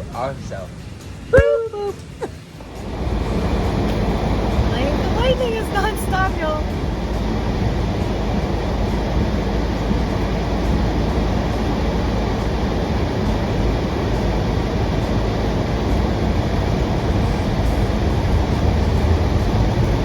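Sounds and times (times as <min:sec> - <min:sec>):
rain rushing: 0:02.0 - 0:20.0
deep thunder rumble: 0:02.8 - 0:20.0.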